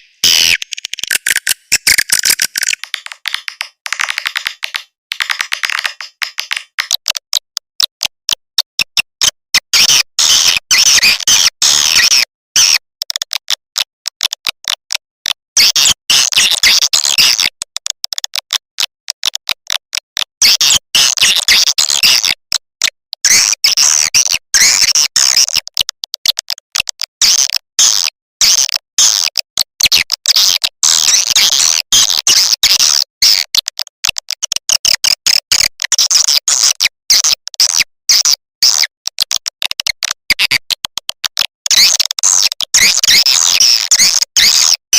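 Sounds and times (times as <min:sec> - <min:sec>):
high chirping twitters: 0:00.0 - 0:07.0
rapid sharp clicks: 0:00.0 - 0:09.1.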